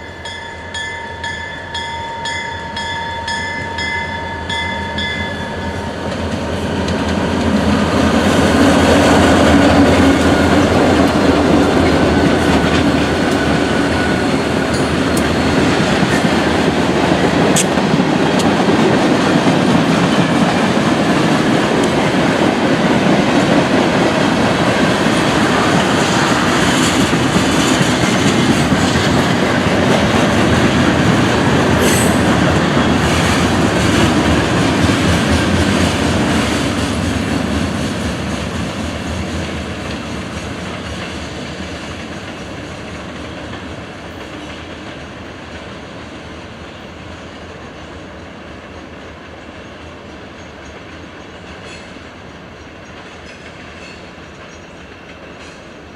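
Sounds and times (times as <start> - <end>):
train wheels on rails: 0.0 - 55.9.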